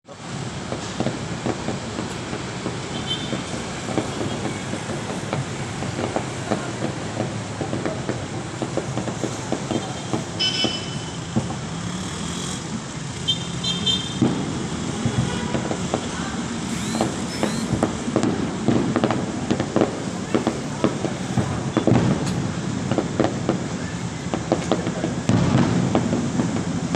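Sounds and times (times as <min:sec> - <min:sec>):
street traffic: 0:00.0 - 0:26.9
fireworks popping and crackling: 0:00.1 - 0:26.9
short high toots: 0:16.6 - 0:18.2.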